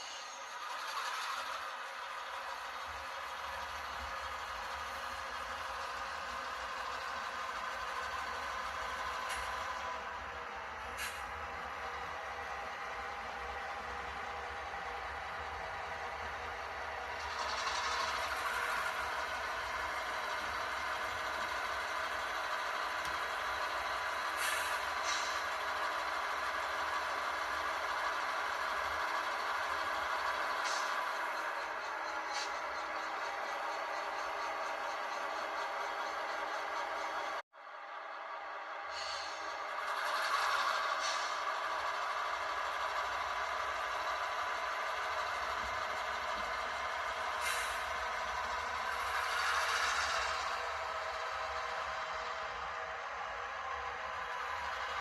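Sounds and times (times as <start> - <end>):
model locomotive engine idle: 0.0 - 55.0
short air hisses: 38.9 - 39.5.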